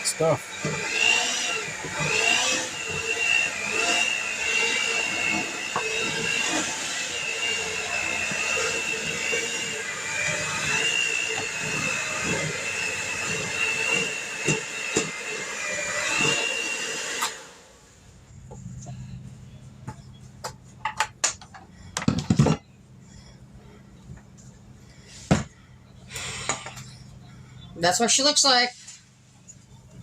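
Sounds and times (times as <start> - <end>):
electric mixer motor whine: 0.0 - 20.2, 24.8 - 26.9.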